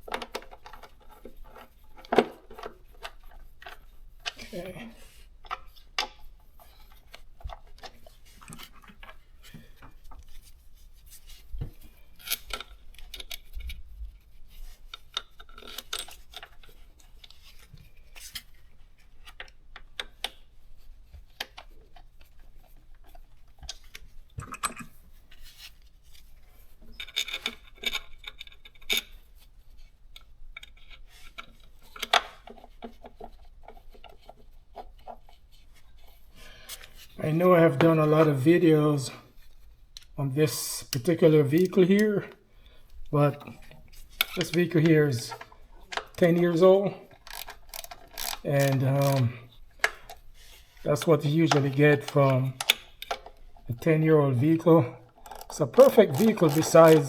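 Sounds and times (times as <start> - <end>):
metal tools clinking and scraping: 55.2 - 57.0.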